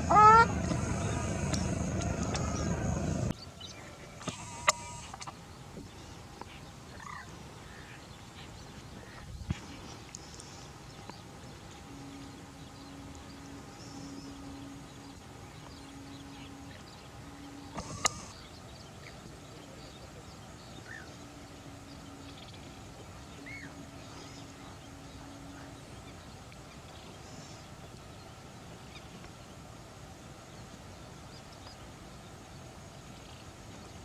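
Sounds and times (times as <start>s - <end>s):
short bird calls: 0.0s - 5.3s, 15.5s - 18.6s
steady background hush: 0.0s - 29.0s
low steady hum: 0.0s - 34.0s.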